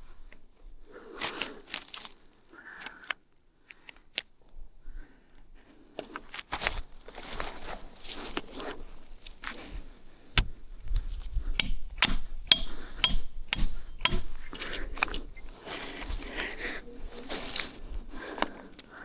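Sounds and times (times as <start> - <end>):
tool knocking on hard surface: 11.6 - 14.4.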